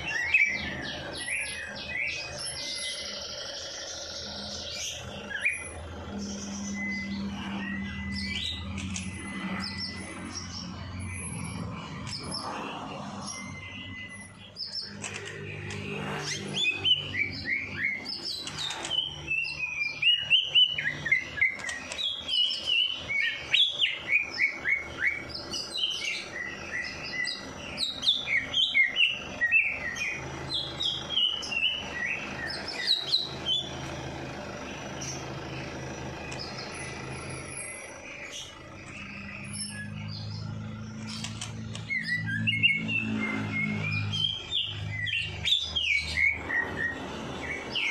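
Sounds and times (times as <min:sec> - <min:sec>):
songbird chirping: 0:00.0 - 0:47.9.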